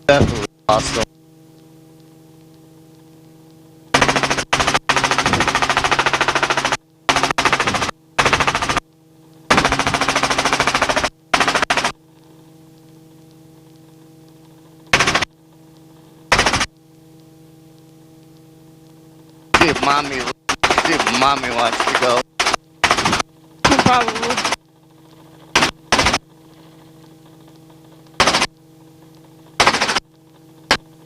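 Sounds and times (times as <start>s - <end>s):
electrical hum: 0.0s - 31.0s
rattling helicopter cabin noise: 4.0s - 8.8s, 9.5s - 11.9s, 19.6s - 28.5s.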